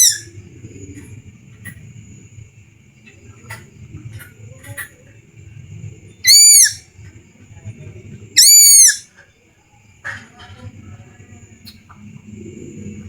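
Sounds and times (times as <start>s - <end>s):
chick whistled calls: 0.0s - 0.3s, 6.2s - 6.9s, 8.4s - 9.2s.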